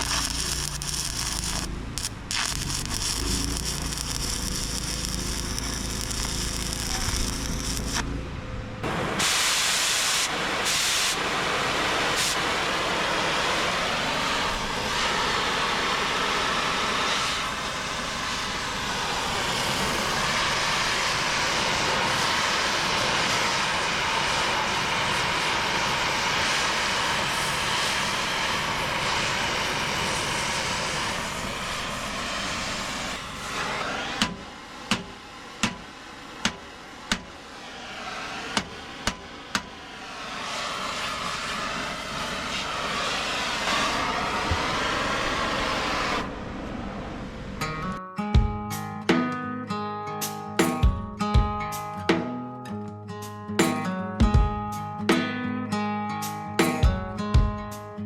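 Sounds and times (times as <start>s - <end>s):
welding arc crackling and hissing: 0.0s - 8.2s, 8.8s - 46.3s.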